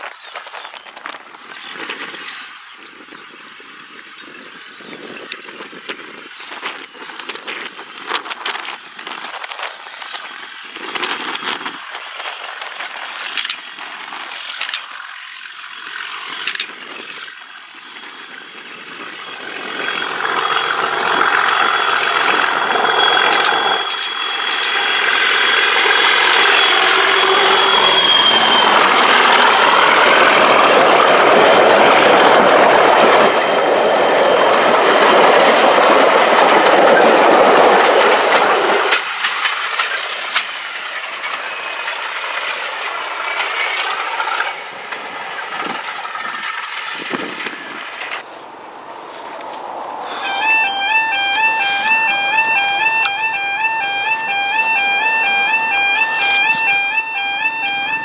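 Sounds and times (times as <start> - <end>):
diesel locomotive engine roaring: 0.9 - 58.0
thin high whistle: 19.9 - 30.7, 49.1 - 58.0.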